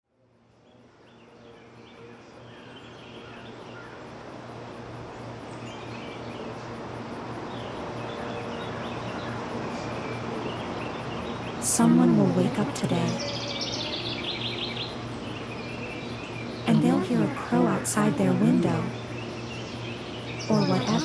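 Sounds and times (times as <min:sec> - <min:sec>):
birds chirping: 0:10.5 - 0:21.0
steady low hum: 0:11.6 - 0:21.0.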